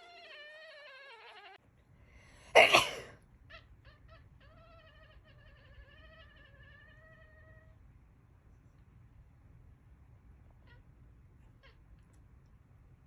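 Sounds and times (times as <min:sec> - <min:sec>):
cat meowing: 0:00.0 - 0:01.6.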